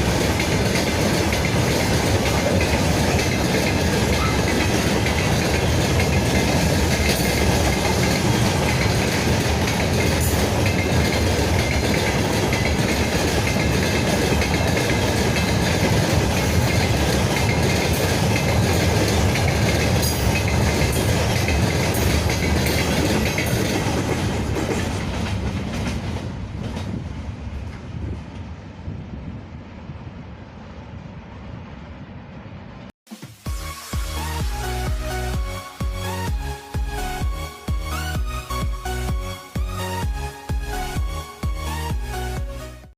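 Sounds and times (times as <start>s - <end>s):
wheels clacking over rail joints: 0.0s - 28.5s
freight train wagons rolling past: 0.0s - 32.9s.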